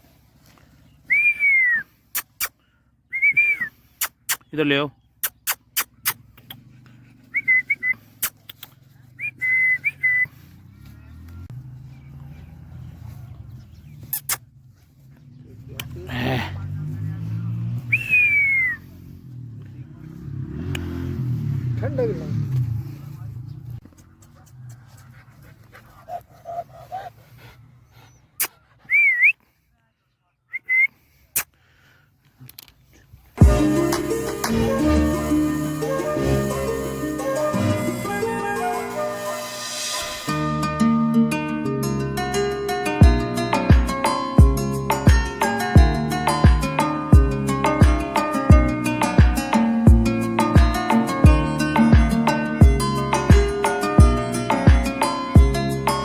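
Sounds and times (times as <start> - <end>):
person whistling short notes: 1.1 - 4.5, 7.3 - 8.6, 9.2 - 10.3, 17.9 - 18.8, 28.4 - 29.4, 30.5 - 31.5
sharp clicks: 8.2 - 8.8
loud whistles: 9.2 - 10.3, 17.9 - 18.8.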